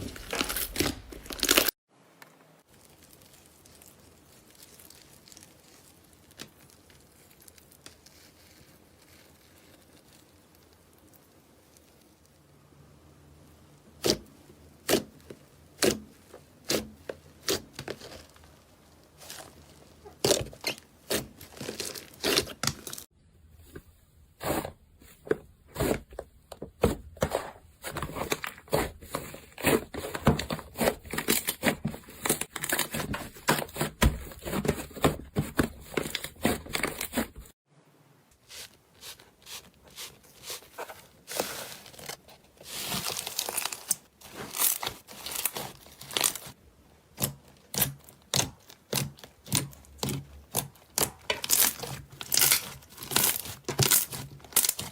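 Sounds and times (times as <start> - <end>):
slime squishing with sticky pops: 2.7 - 12.1, 14.0 - 23.0, 43.2 - 54.9.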